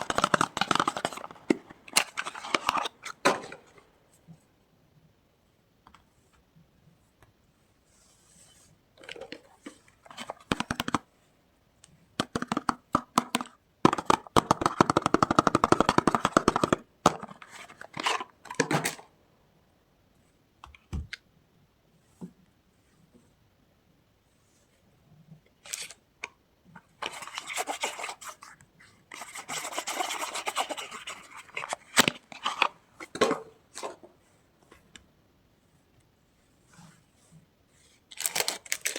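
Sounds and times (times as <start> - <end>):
packaging crinkling: 38.1 - 38.9
rapid crackling of packaging: 38.1 - 38.9.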